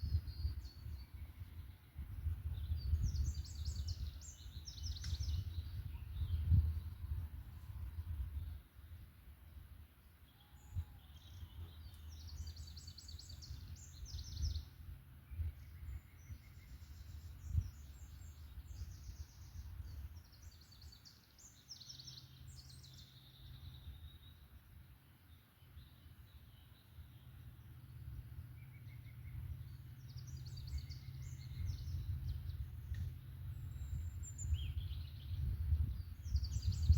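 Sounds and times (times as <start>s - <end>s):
songbirds trilling: 10.0s - 36.9s
steady low rumble: 27.6s - 36.9s.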